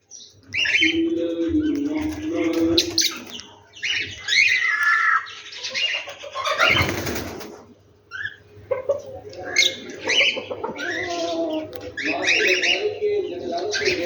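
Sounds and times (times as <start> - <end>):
birds chirping and squawking: 0.0 - 14.0.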